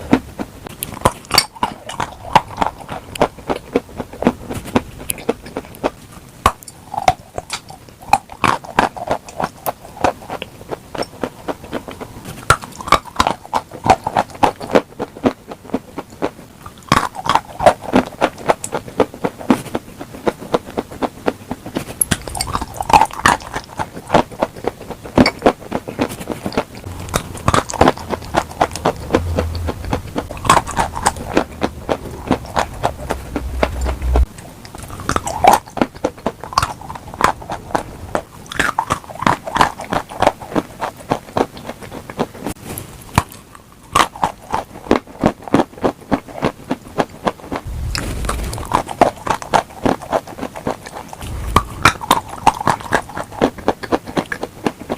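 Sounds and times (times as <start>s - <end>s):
crunchy food being chewed: 0.0s - 54.9s
moist mouth sounds: 0.0s - 54.9s
low hum: 26.8s - 35.5s, 47.7s - 49.6s, 51.2s - 52.6s.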